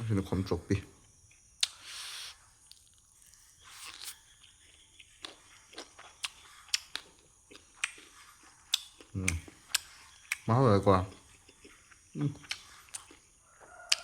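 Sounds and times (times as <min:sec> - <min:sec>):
soft breath hiss: 0:01.6 - 0:04.2
person chewing crunchy food: 0:01.6 - 0:14.0.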